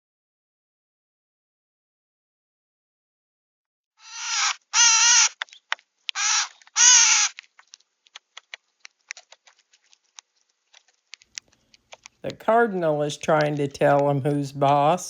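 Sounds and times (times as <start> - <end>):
bird harsh raspy calls: 4.0 - 5.4, 6.2 - 7.4.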